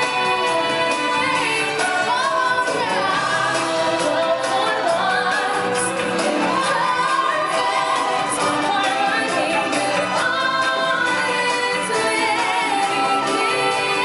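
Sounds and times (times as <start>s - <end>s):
choir singing: 0.0s - 14.0s
musical accompaniment: 0.0s - 14.0s.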